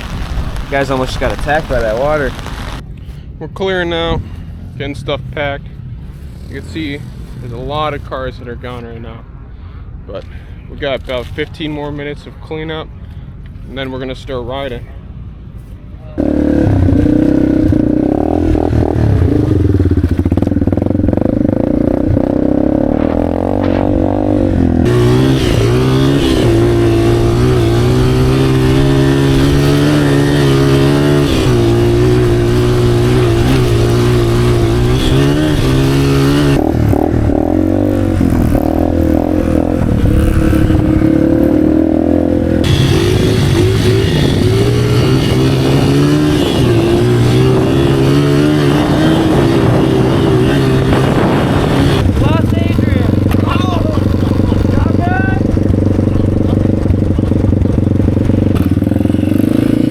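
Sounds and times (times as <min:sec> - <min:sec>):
motorcycle engine running: 0:14.6 - 0:59.9.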